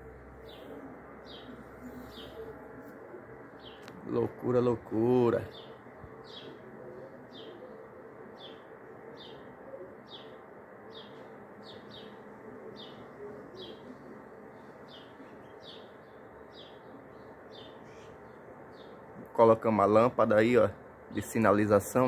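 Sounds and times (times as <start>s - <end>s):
faint background hum: 0.0s - 22.0s
small bird chirping: 14.9s - 19.0s.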